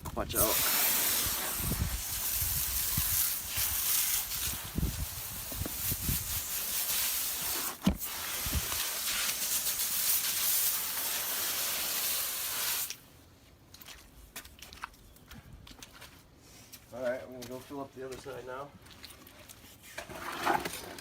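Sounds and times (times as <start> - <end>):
water spraying from hose: 0.3 - 13.0
brief thump: 7.8 - 8.1.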